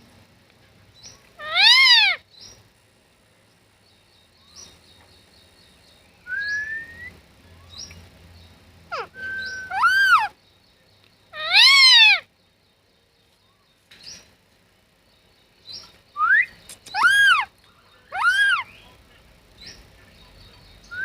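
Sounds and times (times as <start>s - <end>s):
parrot harsh calls: 1.4s - 2.2s, 8.9s - 10.4s, 11.3s - 12.3s, 16.2s - 17.5s, 18.1s - 18.7s.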